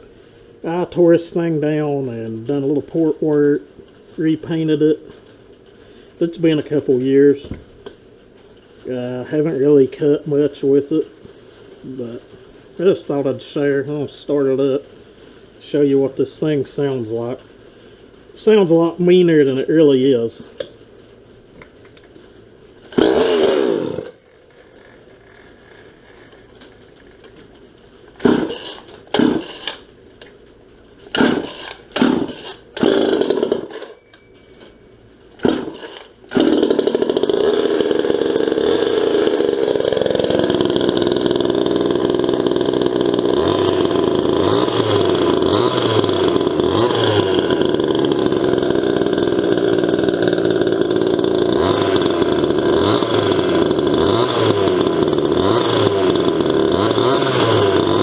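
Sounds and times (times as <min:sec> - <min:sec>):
chainsaw pull-start bursts: 0:22.9 - 0:26.6, 0:28.1 - 0:29.9, 0:31.1 - 0:34.0, 0:35.4 - 0:58.0
chainsaw engine running: 0:22.9 - 0:27.0, 0:28.2 - 0:29.9, 0:31.1 - 0:34.0, 0:35.4 - 0:58.0.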